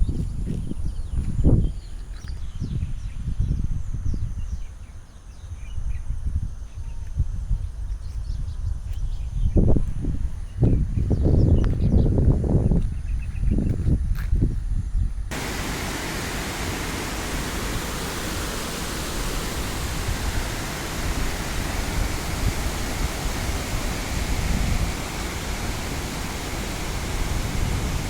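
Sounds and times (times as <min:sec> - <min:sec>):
rush of falling water: 0:15.3 - 0:28.0.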